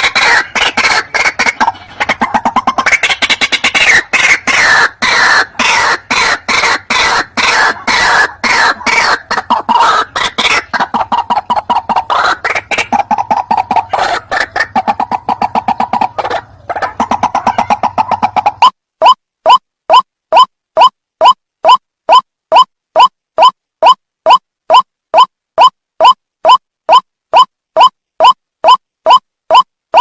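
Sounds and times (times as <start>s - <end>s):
waterhen harsh croaking calls: 0.0s - 20.9s.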